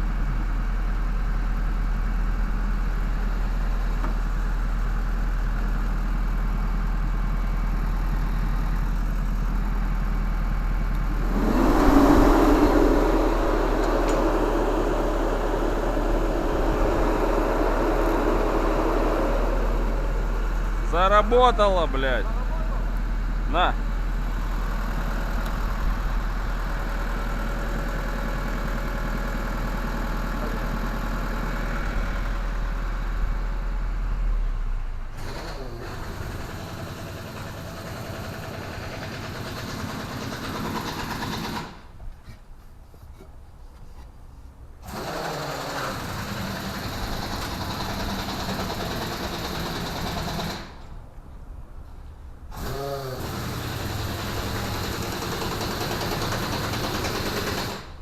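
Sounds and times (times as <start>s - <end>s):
refrigeration unit running: 9.8s - 32.3s
deep hum: 10.3s - 21.0s.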